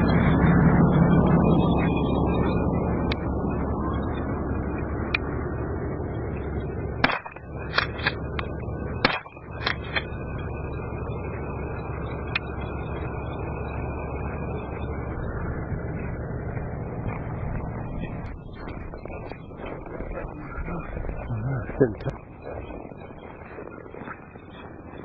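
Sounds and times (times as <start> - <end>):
wind: 0.0 - 25.0
shotgun shots: 7.0 - 8.2, 9.0 - 10.1.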